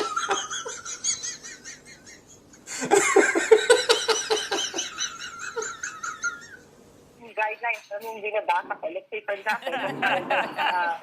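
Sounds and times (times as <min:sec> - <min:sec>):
person laughing hard: 0:00.0 - 0:06.6.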